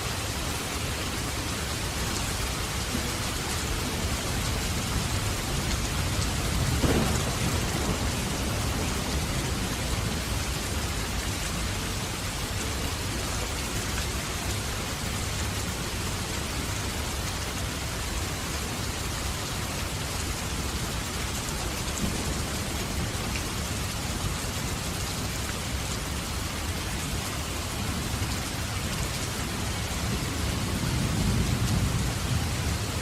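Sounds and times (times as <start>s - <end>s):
heavy rain: 0.0s - 33.0s
thunder rumbling: 2.9s - 11.8s, 29.6s - 33.0s.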